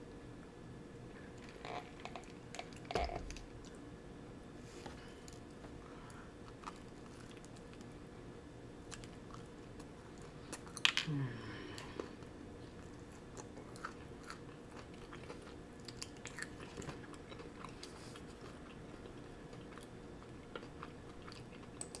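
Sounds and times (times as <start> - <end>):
person chewing crunchy bread: 6.2 - 8.0, 8.8 - 10.8, 11.8 - 22.0.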